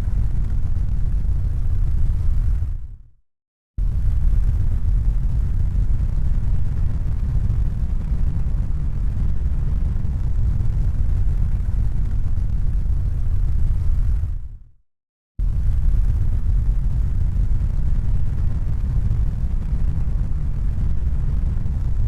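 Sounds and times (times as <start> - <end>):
deep rumbling noise: 15.4 - 22.0.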